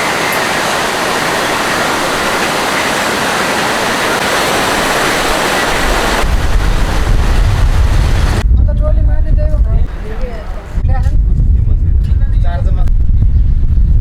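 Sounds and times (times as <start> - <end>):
fast-flowing water rushing: 0.0 - 8.4
wind rumble on microphone: 0.0 - 14.0.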